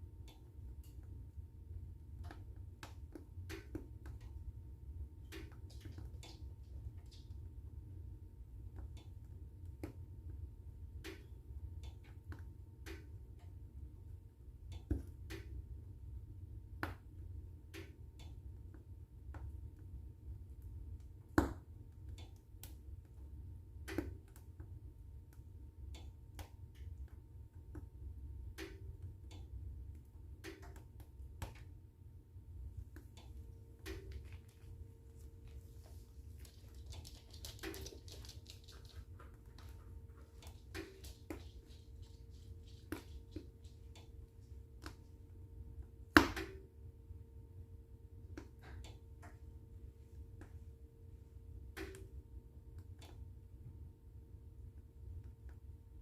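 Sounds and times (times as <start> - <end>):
wood fire crackling: 32.7 - 45.2.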